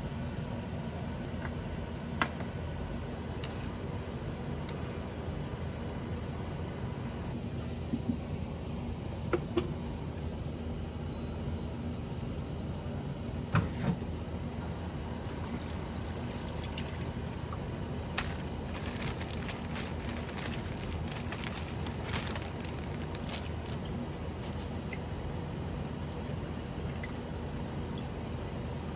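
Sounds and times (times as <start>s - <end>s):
steady low hum: 0.0s - 28.9s
water running and splashing: 15.2s - 17.6s.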